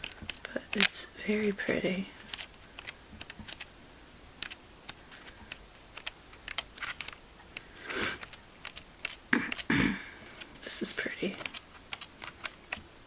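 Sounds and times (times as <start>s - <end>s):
paper rustling and clicks: 4.4s - 7.2s.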